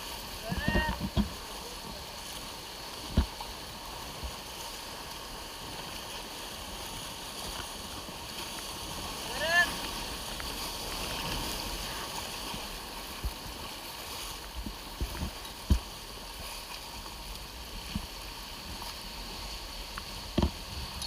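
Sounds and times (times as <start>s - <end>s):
water rushing: 0.0s - 21.0s.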